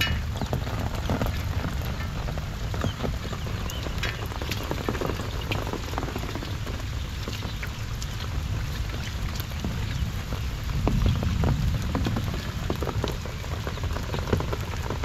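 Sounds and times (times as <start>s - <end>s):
short ticks and splashes: 0.0s - 15.0s
steady rain on water: 0.0s - 15.0s.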